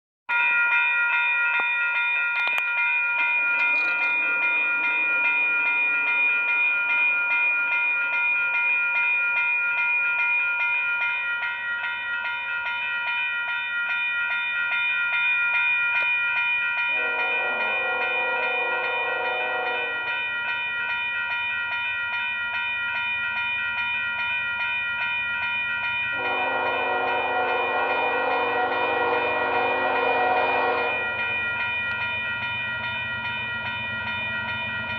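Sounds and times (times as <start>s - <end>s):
crossing signal bell ringing: 0.3s - 34.9s
locomotive air horn: 17.0s - 20.0s, 26.2s - 31.0s.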